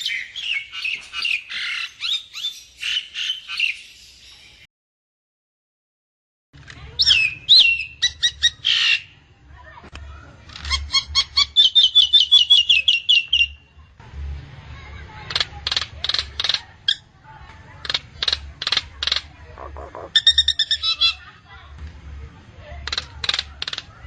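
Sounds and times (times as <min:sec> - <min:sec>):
myna bird calling: 0:17.8 - 0:21.2.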